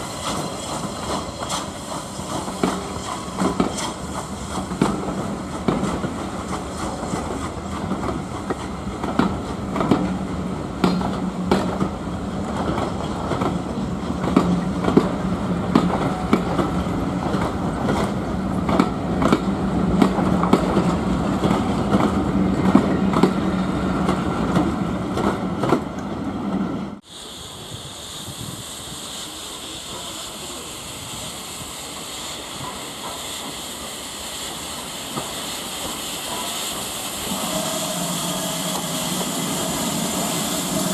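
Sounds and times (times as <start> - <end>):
train wheels clicking on rails: 0.0 - 40.9.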